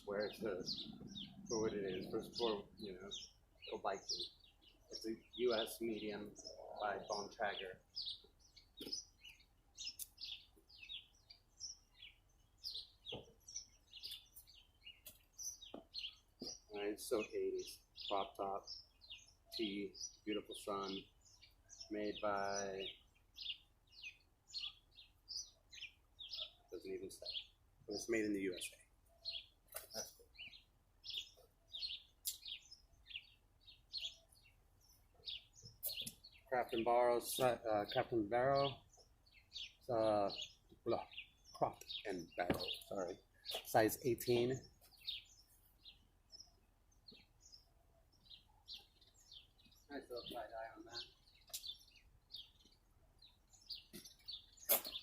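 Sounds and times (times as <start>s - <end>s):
small bird chirping: 0.0s - 55.0s.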